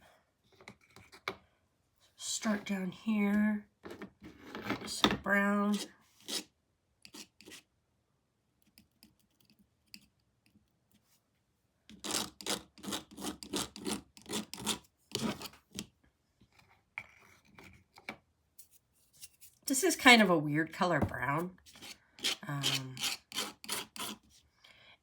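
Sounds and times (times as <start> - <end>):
paintbrush scratching on canvas: 12.0 - 15.5, 21.6 - 24.4.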